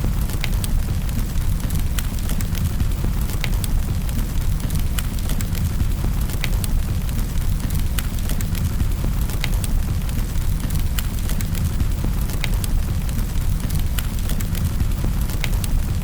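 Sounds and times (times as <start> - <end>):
fire pops and snaps: 0.0 - 16.0
low rumble of flames: 0.0 - 16.0
wood fire crackling: 0.0 - 16.0.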